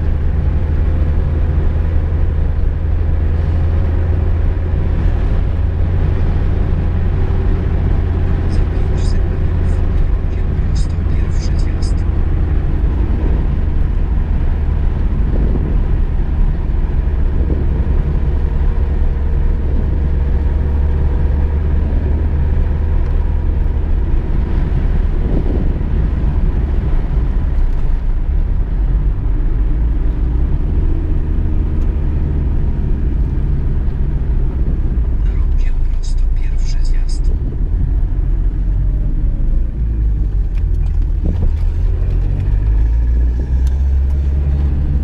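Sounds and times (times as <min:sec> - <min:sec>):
car engine drone: 0:00.0 - 0:45.0
road rumble: 0:00.0 - 0:45.0.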